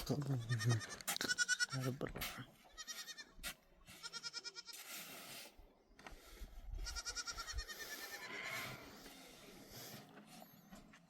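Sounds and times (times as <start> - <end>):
goat bleating: 0.0 - 2.0, 2.6 - 4.8, 6.8 - 8.8.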